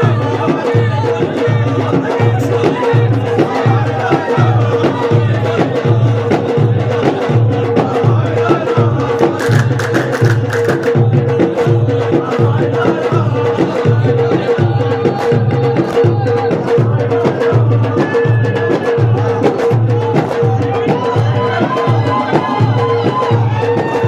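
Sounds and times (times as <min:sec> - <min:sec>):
deep frame drums beating: 0:00.0 - 0:24.0
sharp claps: 0:09.4 - 0:11.0.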